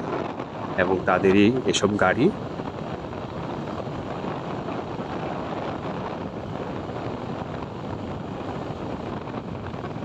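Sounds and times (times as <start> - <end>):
road noise: 0.0 - 10.0
wind rush on microphone: 0.0 - 10.0.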